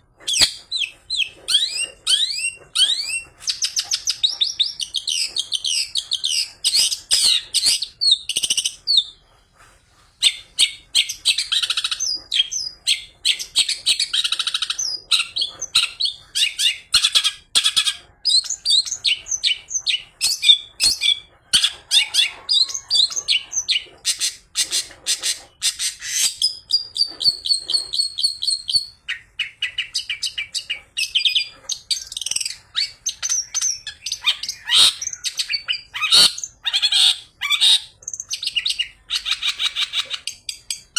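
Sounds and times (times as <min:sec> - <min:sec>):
shrike singing chirps and trills: 0:00.2 - 0:09.2, 0:10.3 - 0:40.9.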